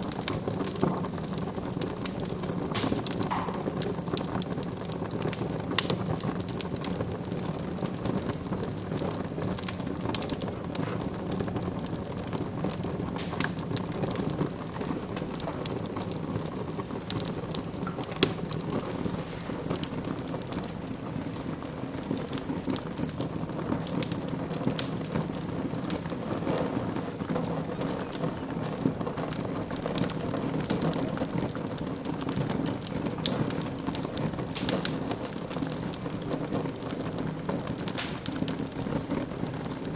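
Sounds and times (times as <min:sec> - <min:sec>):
rush of flame: 0:00.0 - 0:39.9
wood fire crackling and popping: 0:00.0 - 0:39.9.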